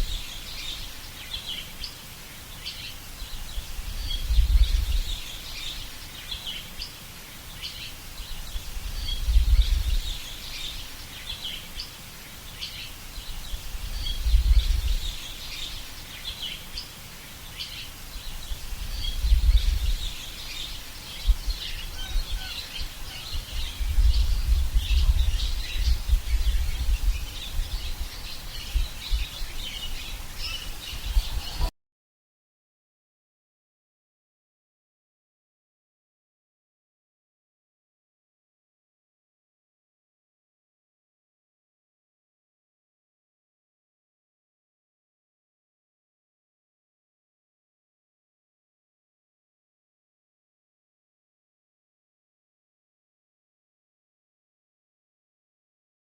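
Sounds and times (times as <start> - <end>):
small birds chirping: 0.0 - 31.7.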